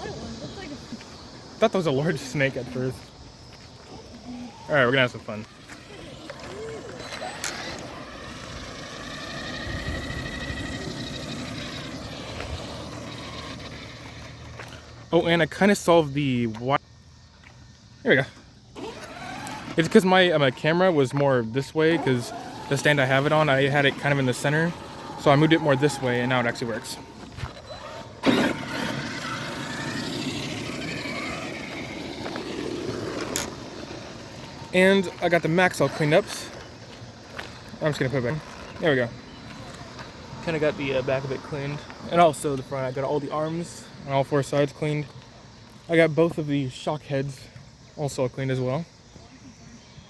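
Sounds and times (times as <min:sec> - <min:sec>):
tyre and road noise: 0:00.0 - 0:16.8, 0:17.4 - 0:46.4
electric motor whine: 0:04.0 - 0:14.8, 0:18.8 - 0:20.5, 0:21.6 - 0:43.3.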